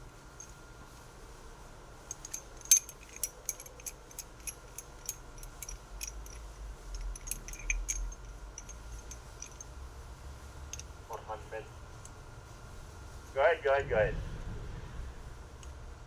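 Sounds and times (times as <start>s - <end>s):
faint low rumble: 5.4s - 16.0s.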